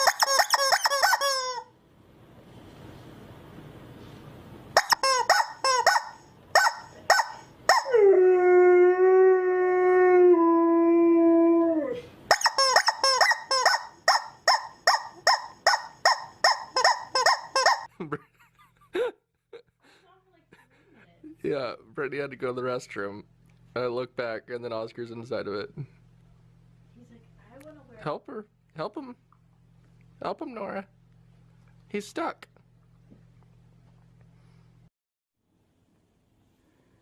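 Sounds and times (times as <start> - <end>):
dog barking: 4.8 - 7.9
dog howling: 6.7 - 12.1.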